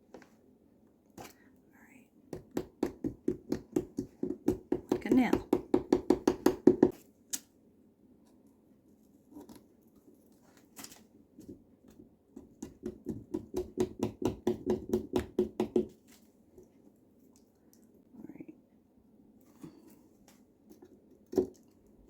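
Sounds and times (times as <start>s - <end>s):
carving tool sawing pumpkin: 2.4s - 6.9s.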